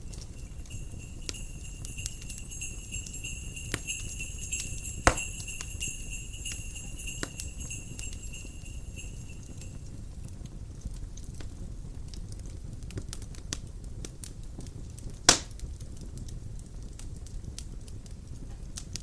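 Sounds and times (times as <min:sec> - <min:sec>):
sleigh bells jingling: 0:00.0 - 0:10.0
wind rumbling: 0:00.0 - 0:10.0
wood fire crackling: 0:00.0 - 0:19.0.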